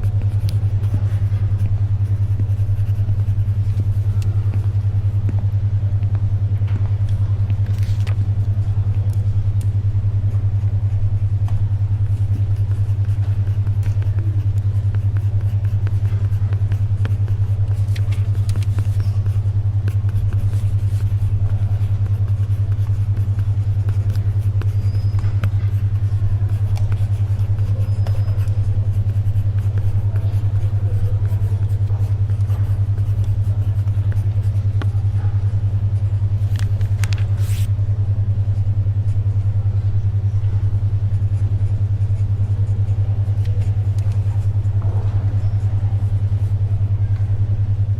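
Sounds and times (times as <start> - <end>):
pencil scratching on paper: 0.0 - 4.8, 12.0 - 35.0, 36.5 - 37.7
pulsing low hum tone: 0.0 - 47.9
paper rustling: 17.2 - 21.2, 36.4 - 37.7.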